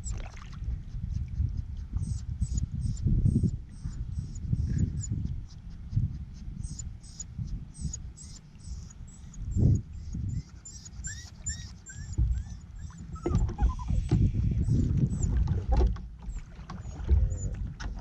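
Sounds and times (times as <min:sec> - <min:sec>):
low uneven rumble: 0:00.0 - 0:18.0
dog whining: 0:06.6 - 0:15.5, 0:16.3 - 0:17.6.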